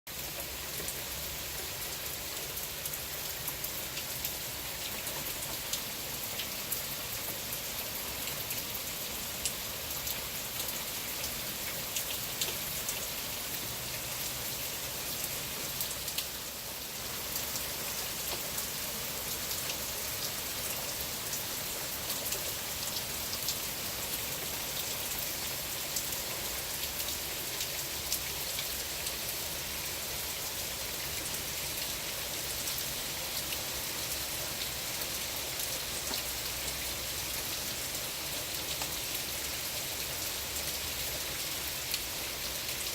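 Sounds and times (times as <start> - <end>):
raindrops ticking on hard surface: 0.1 - 8.6, 9.4 - 14.0, 17.1 - 21.4, 34.4 - 39.4
steady rain hiss: 0.1 - 42.9.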